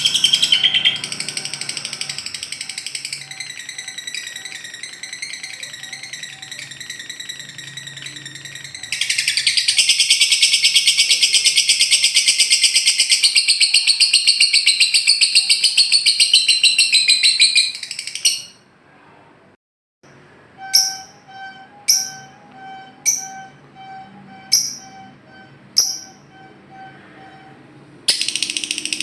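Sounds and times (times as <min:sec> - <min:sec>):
bird warbling song: 0:00.0 - 0:18.6
lovebird chattering trill: 0:00.0 - 0:18.6, 0:20.6 - 0:22.4, 0:25.8 - 0:26.8, 0:28.1 - 0:29.0.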